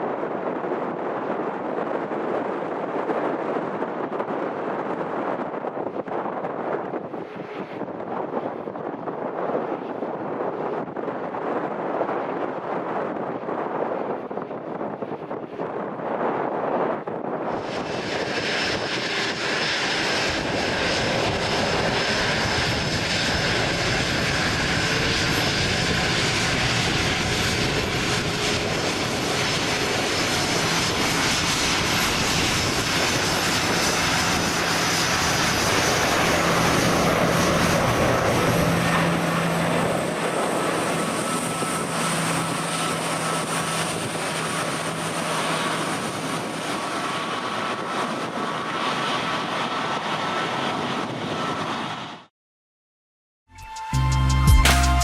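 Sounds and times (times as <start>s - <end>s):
wind buffeting microphone: 0.0s - 52.2s
jet engines rumbling: 14.3s - 52.2s
high whine: 53.5s - 55.0s.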